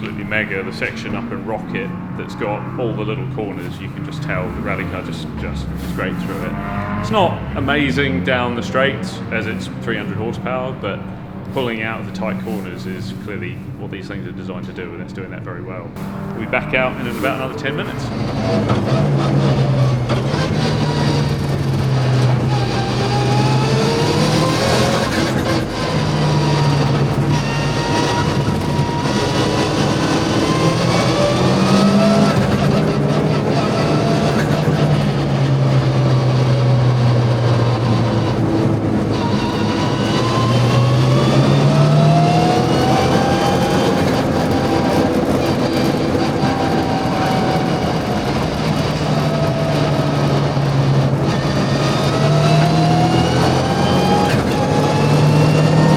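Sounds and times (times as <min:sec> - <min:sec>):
rally car engine revving: 0:00.0 - 0:55.9.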